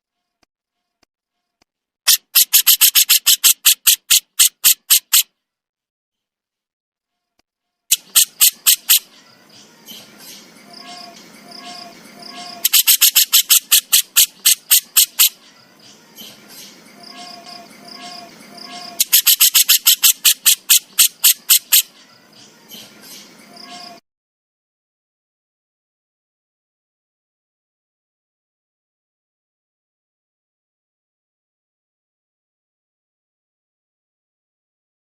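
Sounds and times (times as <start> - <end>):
high bird chirps: 2.1 - 5.2, 7.9 - 24.0
songbird rattling call: 2.1 - 5.3, 7.9 - 24.0.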